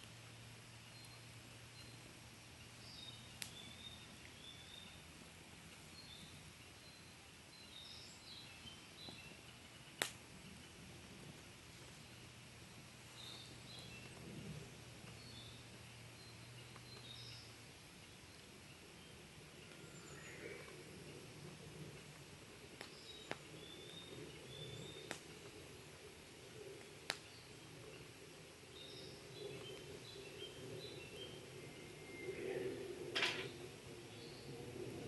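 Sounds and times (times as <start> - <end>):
wood fire burning: 0.0 - 35.0
fire crackling pops: 3.3 - 3.8, 9.0 - 15.9, 20.6 - 28.4.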